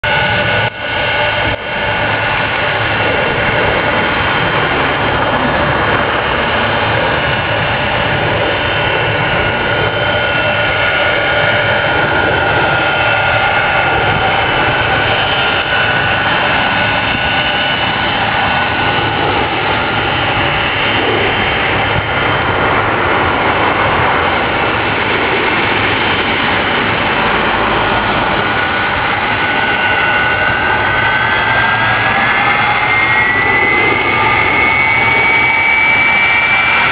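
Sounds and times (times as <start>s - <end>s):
jet engines running: 0.0s - 36.9s.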